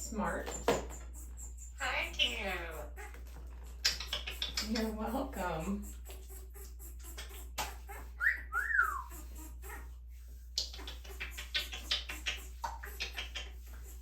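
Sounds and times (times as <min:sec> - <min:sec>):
parrot whistling: 0:08.2 - 0:09.4.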